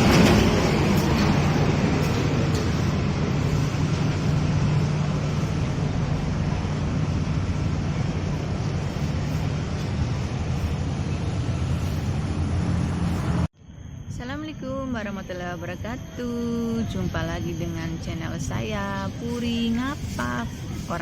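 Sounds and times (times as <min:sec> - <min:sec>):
traffic rumble: 0:00.0 - 0:13.5.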